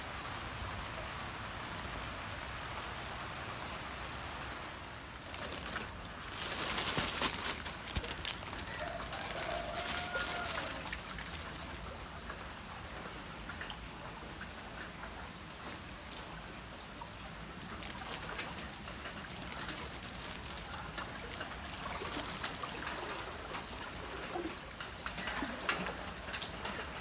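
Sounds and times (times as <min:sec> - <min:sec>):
rain falling on water: 0:00.0 - 0:27.0
splashing footsteps wading: 0:05.2 - 0:12.4, 0:17.6 - 0:24.3.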